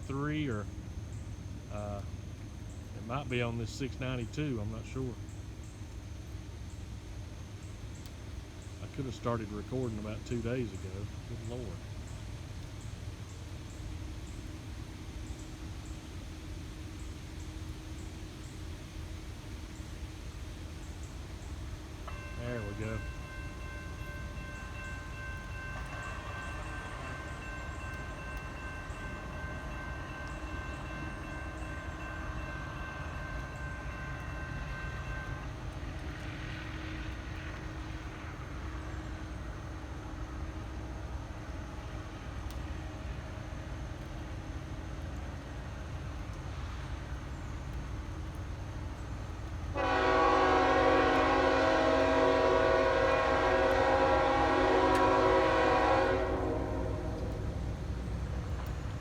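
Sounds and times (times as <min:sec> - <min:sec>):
low train rumble: 0:00.0 - 0:59.0
locomotive air horn: 0:49.7 - 0:57.5.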